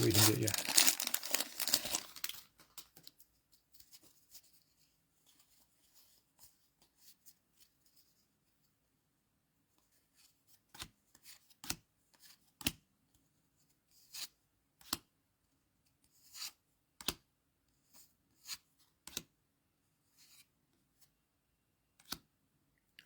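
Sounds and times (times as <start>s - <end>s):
cards sliding rustles: 0.0s - 2.4s.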